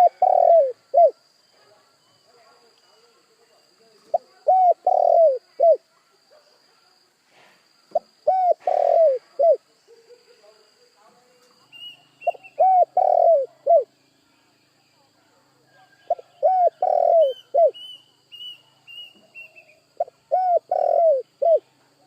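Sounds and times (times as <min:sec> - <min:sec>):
dove cooing: 0:00.0 - 0:01.2, 0:04.1 - 0:05.8, 0:07.9 - 0:09.6, 0:12.2 - 0:13.9, 0:16.1 - 0:17.9, 0:20.0 - 0:21.8.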